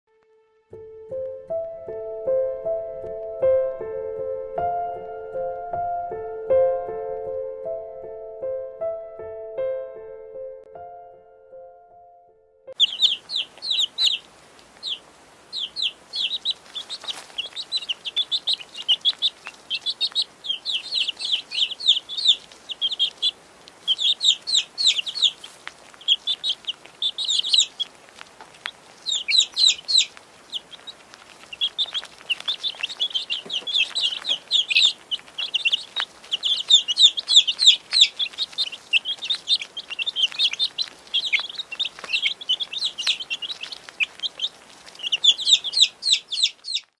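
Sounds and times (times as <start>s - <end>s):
baby chicks peeping: 12.7s - 46.9s.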